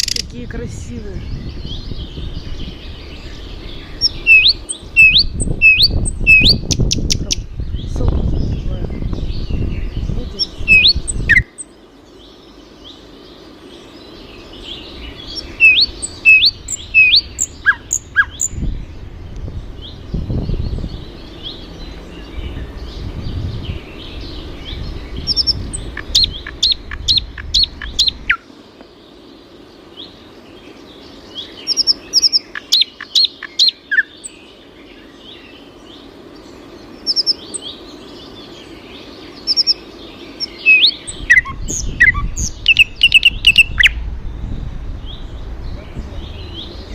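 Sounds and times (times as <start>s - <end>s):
small birds chirping: 0.0s - 46.9s
low rumble: 14.6s - 28.3s, 41.9s - 46.9s.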